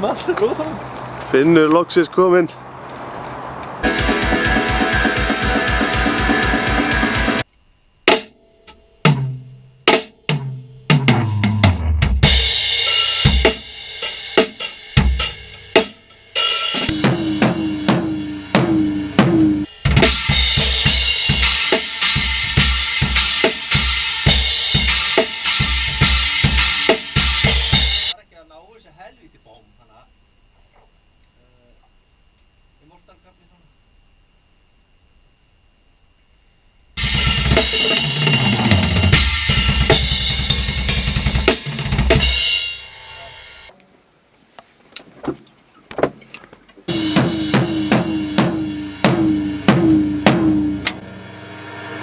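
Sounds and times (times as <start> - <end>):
drum kit playing: 3.8 - 7.4, 9.9 - 28.1, 37.0 - 42.6, 46.9 - 51.2
tom drum hits: 16.9 - 19.6, 46.9 - 51.1.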